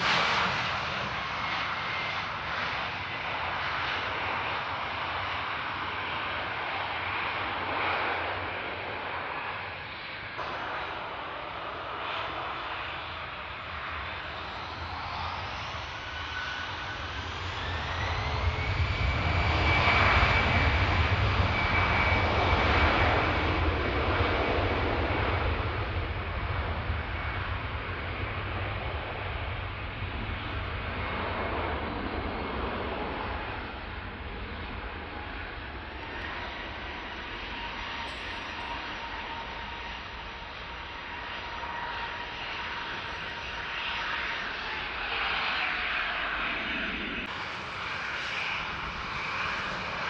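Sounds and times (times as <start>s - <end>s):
jet engines spooling up: 7.3s - 50.0s.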